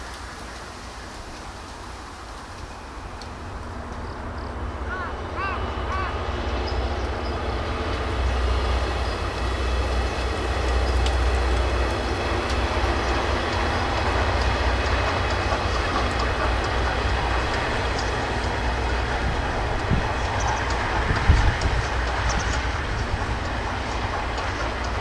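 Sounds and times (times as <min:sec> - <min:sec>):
train wheels rumbling: 0:00.0 - 0:25.0.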